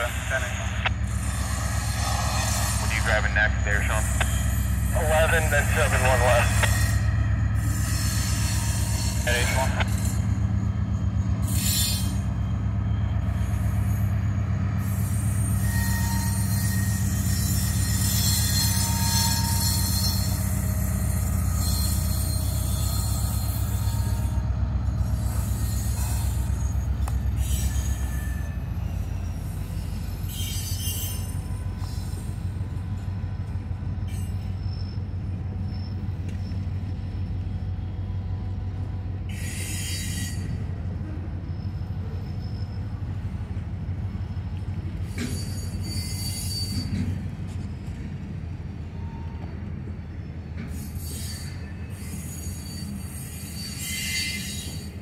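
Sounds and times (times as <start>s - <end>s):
diesel locomotive engine droning: 0.0s - 55.0s
wheels squealing: 6.6s - 38.2s, 39.3s - 43.4s, 45.0s - 47.6s, 50.2s - 55.0s.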